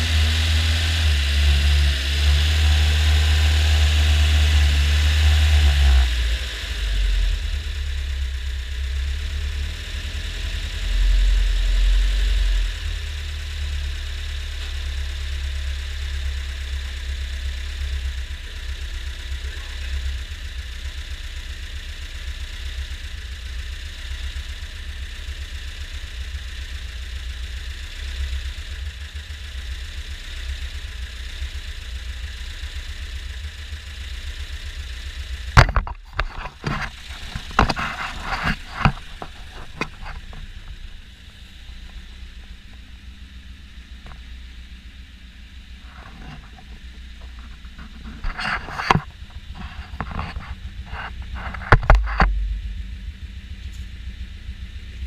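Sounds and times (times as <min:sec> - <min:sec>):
car engine idling: 0:00.0 - 0:55.0
camera handling knocks and rustling: 0:35.6 - 0:40.4.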